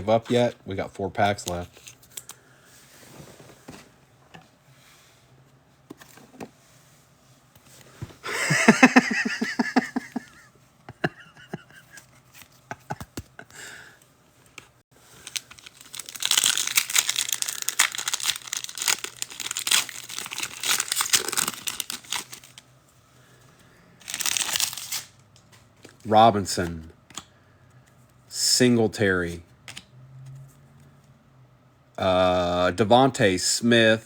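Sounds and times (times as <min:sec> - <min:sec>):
foil wrapper crinkling: 0:15.1 - 0:22.6, 0:24.0 - 0:25.1
foil pack tearing: 0:15.2 - 0:22.6, 0:24.0 - 0:25.1.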